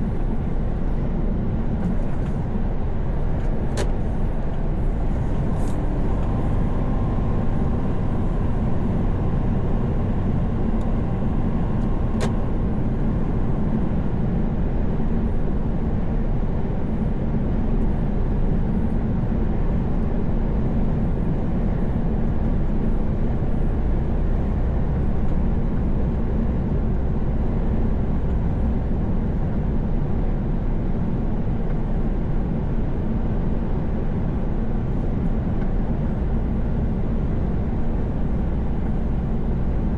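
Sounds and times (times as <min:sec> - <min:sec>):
tyre and road noise: 0:00.0 - 0:13.1
truck engine drone: 0:00.0 - 0:39.9
sharp click: 0:03.7 - 0:04.1, 0:11.8 - 0:12.5.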